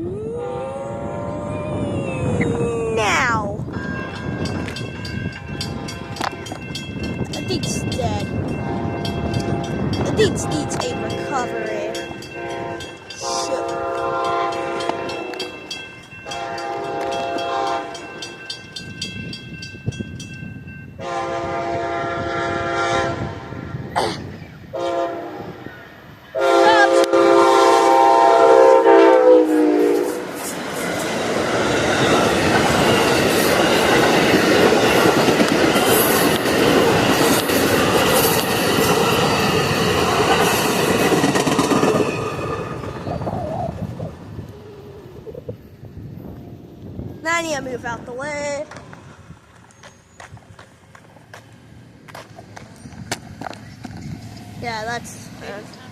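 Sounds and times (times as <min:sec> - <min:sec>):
train wheel and rail clatter: 0:03.6 - 0:22.8, 0:29.8 - 0:55.9
train horn blasts: 0:05.6 - 0:06.6, 0:08.5 - 0:15.6, 0:16.2 - 0:18.1, 0:21.0 - 0:23.9, 0:24.7 - 0:25.6, 0:26.3 - 0:30.4.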